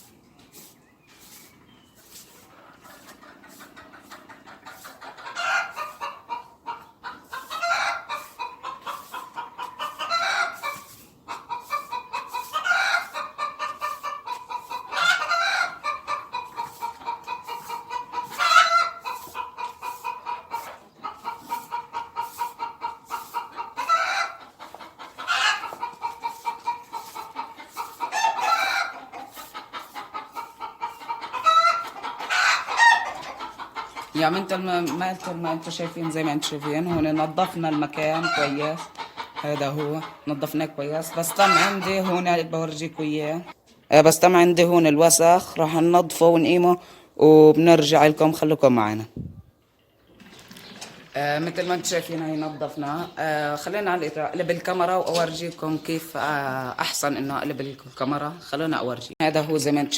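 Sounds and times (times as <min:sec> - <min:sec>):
chickens clucking: 0:00.0 - 0:59.9
loud chicken call: 0:02.8 - 0:34.1.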